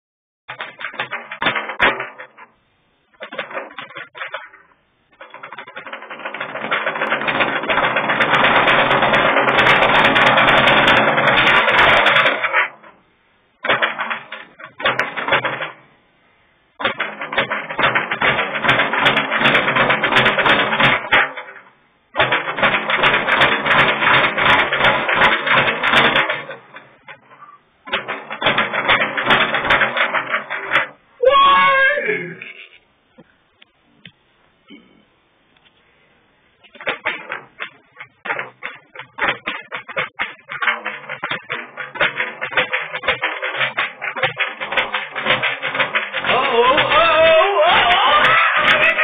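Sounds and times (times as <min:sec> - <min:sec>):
speed bag rattling: 0:03.1 - 0:12.9, 0:36.6 - 0:49.0.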